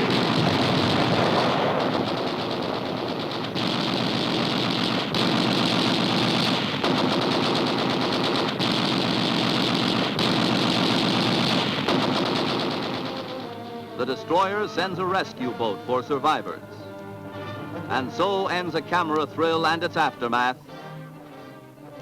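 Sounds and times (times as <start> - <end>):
rapid machine-gun fire: 0.0 - 16.5.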